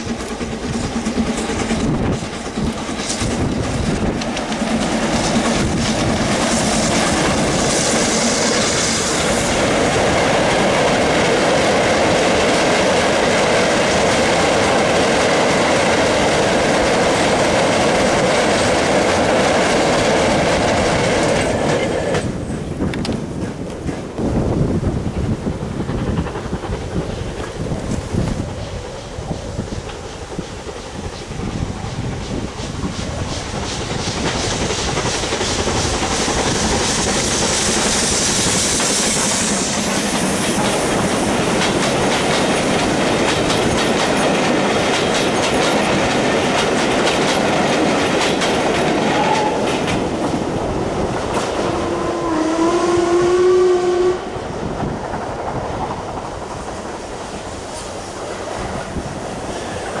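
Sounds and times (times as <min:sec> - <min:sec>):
train wheels clattering: 0:00.0 - 1:00.0
train horn: 0:49.0 - 0:49.9, 0:51.4 - 0:54.4.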